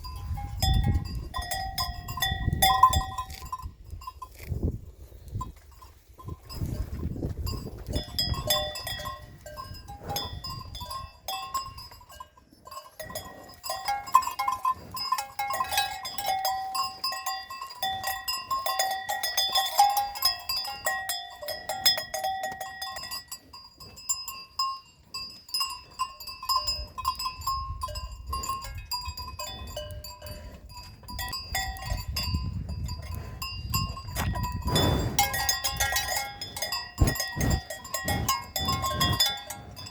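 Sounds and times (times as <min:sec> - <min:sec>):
cowbells clanking: 0:00.0 - 0:04.5, 0:05.2 - 0:39.9.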